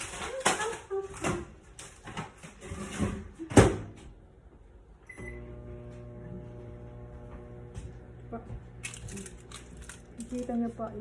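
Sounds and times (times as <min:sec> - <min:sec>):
oven electric hum: 0:04.8 - 0:11.0.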